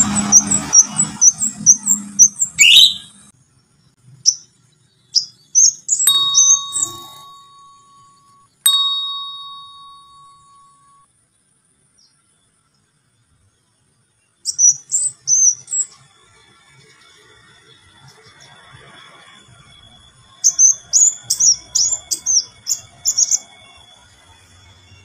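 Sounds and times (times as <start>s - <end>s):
bird chirping: 0.0s - 11.0s, 14.2s - 16.2s, 20.4s - 24.0s
bell-like ding: 6.1s - 11.0s.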